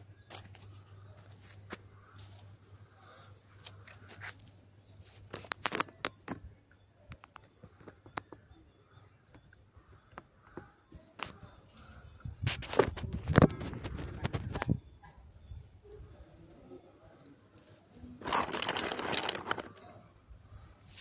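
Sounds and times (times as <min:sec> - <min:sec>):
broom sweeping dry leaves: 0:20.7 - 0:21.0.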